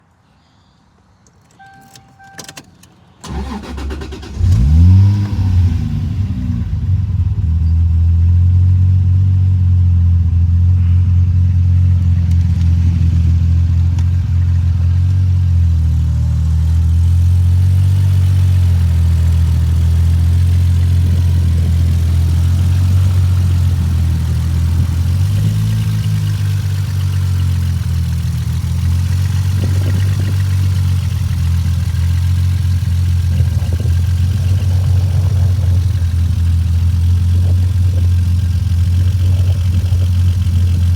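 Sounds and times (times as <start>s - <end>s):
clicks: 1.2s - 3.1s
short beep: 1.5s - 2.9s
car engine revving and idling: 3.2s - 40.9s.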